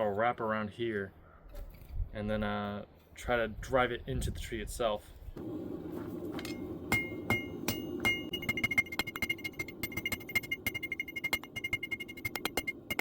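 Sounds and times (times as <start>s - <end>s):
steady low hum: 5.4s - 13.0s
hammer striking metal on anvil: 6.4s - 13.0s.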